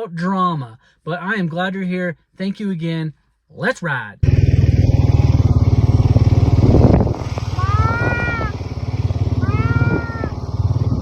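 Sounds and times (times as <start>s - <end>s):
small vehicle engine running: 4.2s - 11.0s
cattle bawling: 7.3s - 10.4s.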